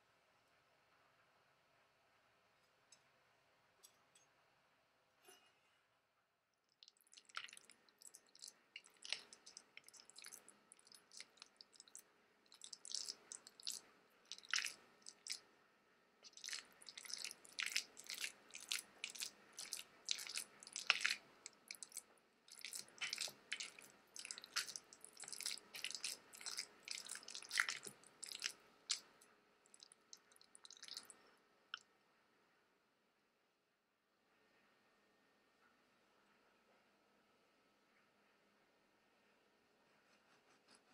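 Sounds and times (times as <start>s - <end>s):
wet squelching crackling food: 6.6s - 15.5s, 16.2s - 31.9s.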